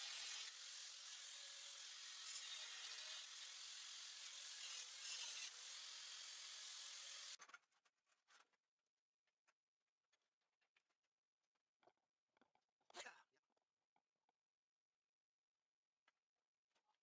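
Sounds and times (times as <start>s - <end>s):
angle grinder grinding steel: 0.0s - 7.4s.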